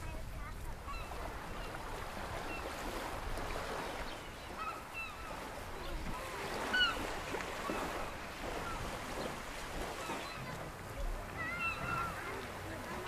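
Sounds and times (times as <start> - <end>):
short arched bird calls: 4.1 - 5.4, 6.6 - 7.1.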